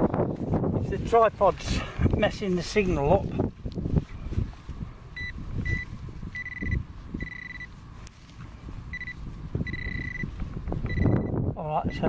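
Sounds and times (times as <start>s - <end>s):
metal detector pinpointer beeping: 5.2s - 7.7s, 8.9s - 12.0s.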